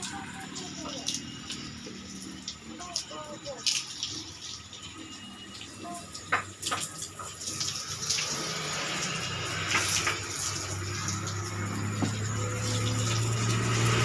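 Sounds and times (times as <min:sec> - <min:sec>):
hose water spraying and splashing: 0:00.0 - 0:14.0
sharp knocks: 0:12.0 - 0:12.2.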